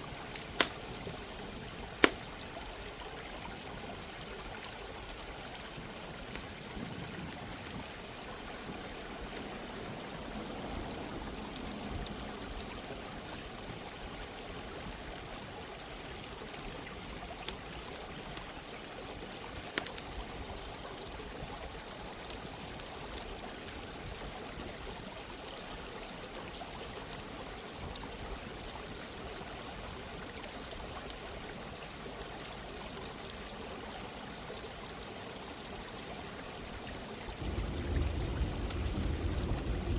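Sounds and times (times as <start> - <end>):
stream rushing: 0.0 - 27.0, 31.6 - 39.9
campfire crackling and popping: 0.2 - 3.0, 4.3 - 8.2, 16.2 - 20.8, 37.4 - 39.9.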